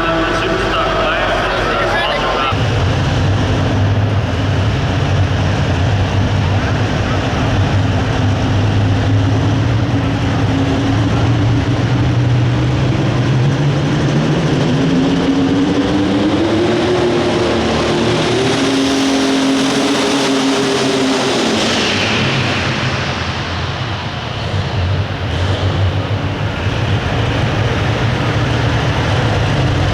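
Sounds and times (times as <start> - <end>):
tractor diesel engine at full throttle: 0.0 - 29.9.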